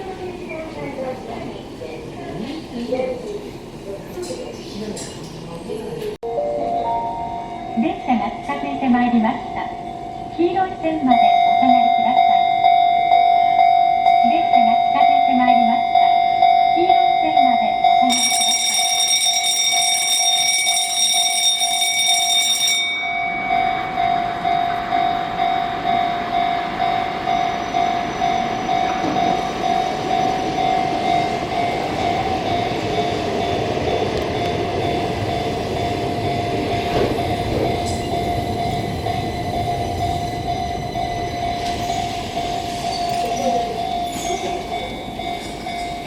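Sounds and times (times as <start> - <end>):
crossing warning bell ringing: 6.2 - 46.0
high tone: 6.2 - 46.0
train running noise: 14.1 - 46.0.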